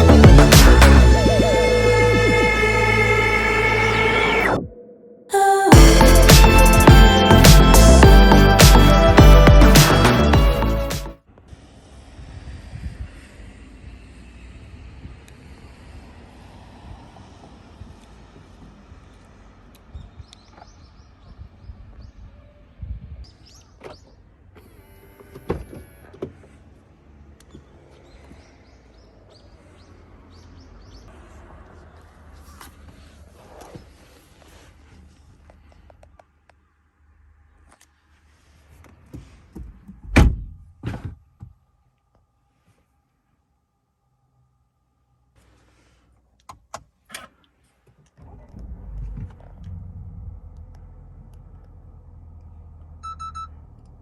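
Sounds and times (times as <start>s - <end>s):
car engine starting and idling: 0.0s - 21.3s, 23.9s - 36.2s, 46.6s - 54.0s.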